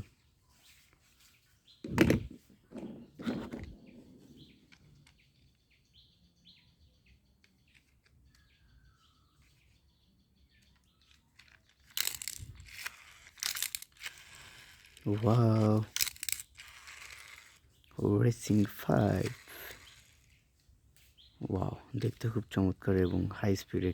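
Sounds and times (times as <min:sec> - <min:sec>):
handling rustle: 0:00.0 - 0:05.5
faint bird chirps: 0:00.0 - 0:11.9
plastic toy vehicles knocking: 0:01.8 - 0:05.6.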